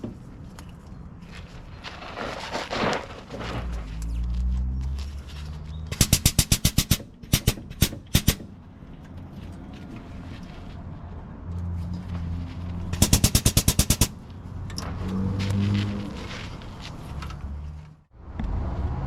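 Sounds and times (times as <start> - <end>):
rapid sharp rattling clicks: 13.0 - 14.2.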